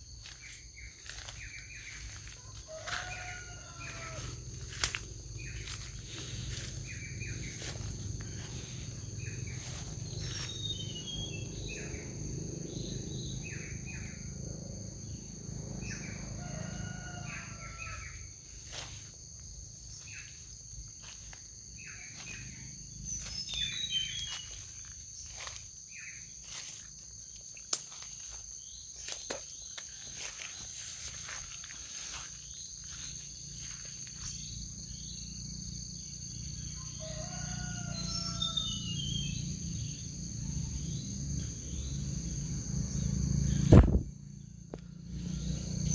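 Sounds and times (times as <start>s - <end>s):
birds chirping: 0.0s - 18.7s, 19.5s - 43.9s
insects droning: 0.0s - 45.9s.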